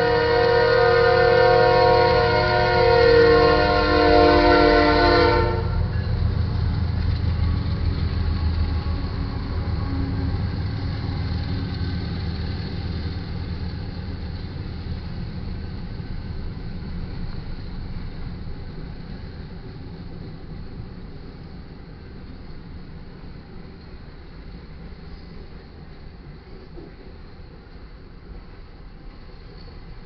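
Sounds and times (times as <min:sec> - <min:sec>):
train horn chord: 0:00.0 - 0:06.2
train rumbling past: 0:00.0 - 0:30.0.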